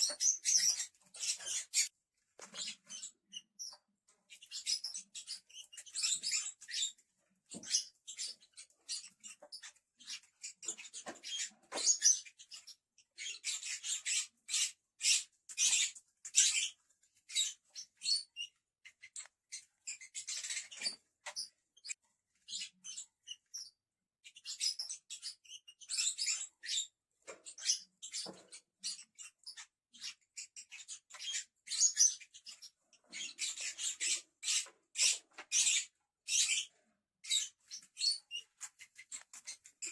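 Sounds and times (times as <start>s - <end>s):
lovebirds chattering: 0.0s - 39.9s.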